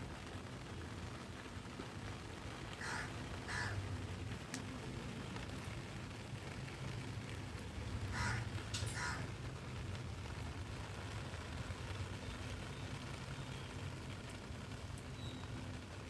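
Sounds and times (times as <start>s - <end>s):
crow cawing: 2.8s - 3.8s, 8.1s - 9.3s.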